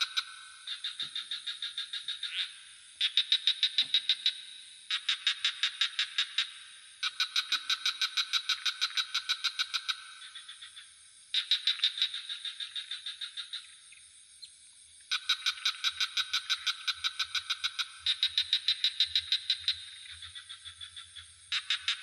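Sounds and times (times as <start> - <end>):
crickets humming: 0.0 - 22.0
frogs trilling: 0.0 - 22.0.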